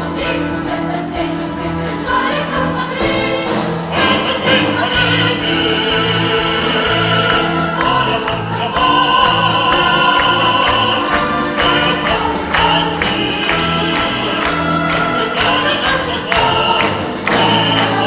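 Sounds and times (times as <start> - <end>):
choir singing: 0.0 - 18.0
orchestra playing: 0.0 - 18.0
steady beat: 4.0 - 18.0.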